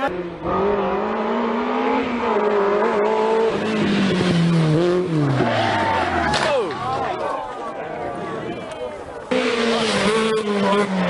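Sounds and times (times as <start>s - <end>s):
rally car engine at high revs: 0.0s - 6.3s, 9.2s - 11.0s.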